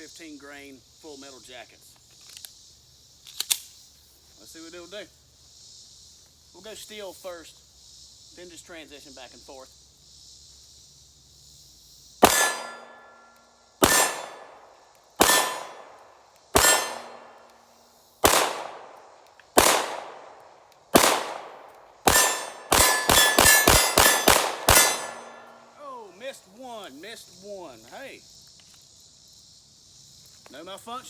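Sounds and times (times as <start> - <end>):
bullets ringing on steel target: 12.2 - 14.6, 15.2 - 15.9, 16.6 - 17.4, 21.0 - 25.7
pistol gunshots: 12.2 - 14.6, 15.2 - 17.4, 18.2 - 25.7.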